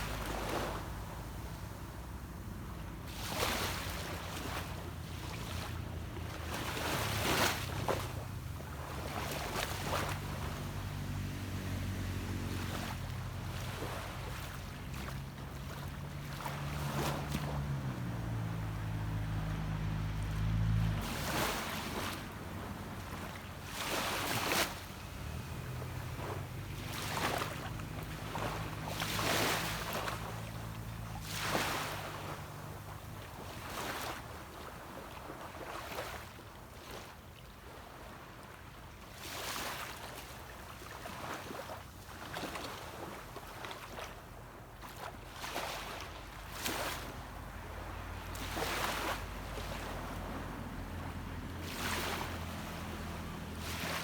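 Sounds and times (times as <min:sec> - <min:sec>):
waves washing onto beach: 0:00.0 - 0:54.0
boat engine drone: 0:03.7 - 0:33.8, 0:47.0 - 0:54.0.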